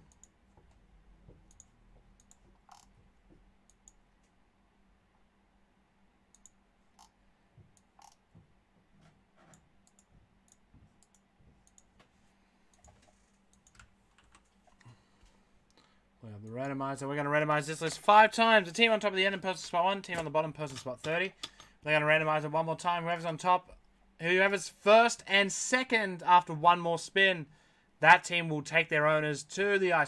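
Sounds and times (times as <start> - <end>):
low steady hum: 0.0 - 30.0
mouse and keyboard clicking: 1.5 - 2.9.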